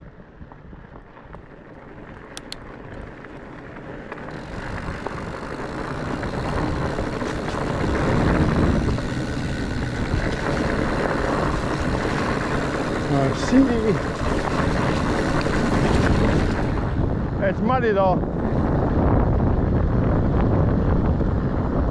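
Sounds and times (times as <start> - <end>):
bike tyre rumble: 0.0 - 21.9
faint clicks: 2.1 - 4.4
wind on microphone: 4.3 - 21.9.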